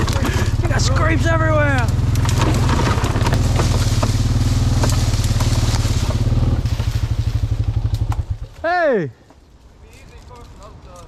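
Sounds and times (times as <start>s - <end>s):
atv engine running: 0.0s - 9.8s
sharp cracks and clicks: 1.0s - 6.2s, 7.6s - 8.6s.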